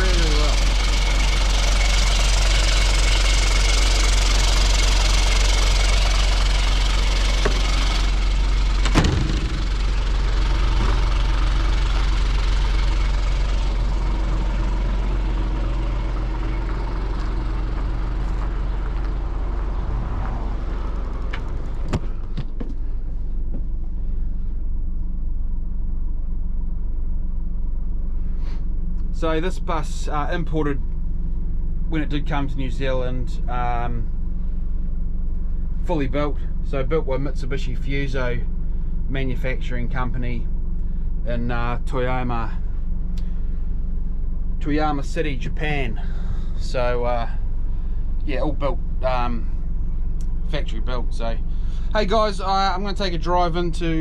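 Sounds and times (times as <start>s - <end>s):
diesel engine idling: 0.0s - 54.0s
sharp knock: 8.8s - 9.8s.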